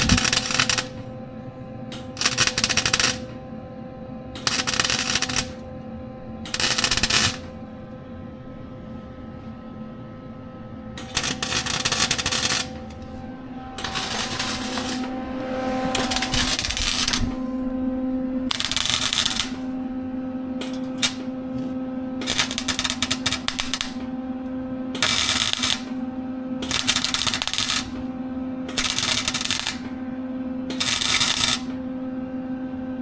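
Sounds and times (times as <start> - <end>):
welder crackling: 0.0 - 1.1, 1.9 - 3.4, 4.4 - 5.6, 6.4 - 7.6, 11.0 - 17.8, 18.4 - 20.0, 20.6 - 24.2, 25.0 - 26.0, 26.6 - 28.1, 28.7 - 30.0, 30.7 - 31.8
electrical hum: 0.0 - 33.0.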